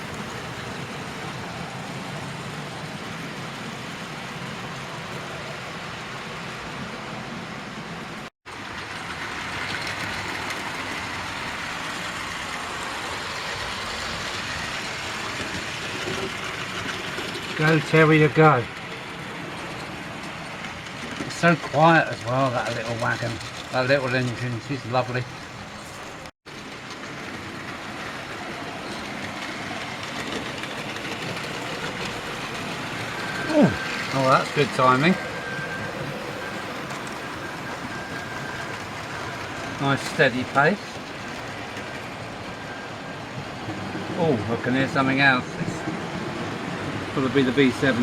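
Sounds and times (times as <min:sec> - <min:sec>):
model train wheels rumbling: 0:08.5 - 0:48.0.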